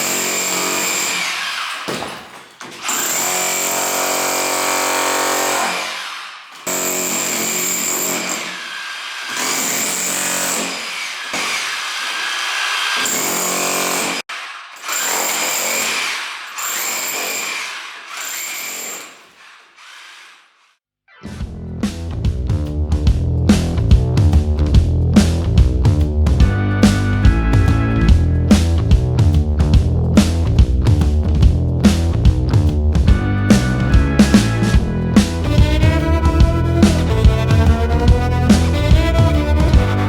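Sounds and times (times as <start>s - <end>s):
rotary hammer breaking masonry: 0.0s - 6.0s, 6.6s - 19.6s.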